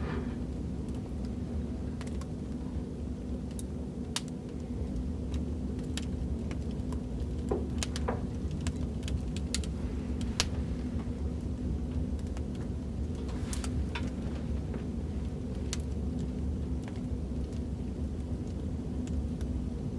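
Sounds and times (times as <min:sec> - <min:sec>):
fireplace crackling: 0:00.0 - 0:19.9.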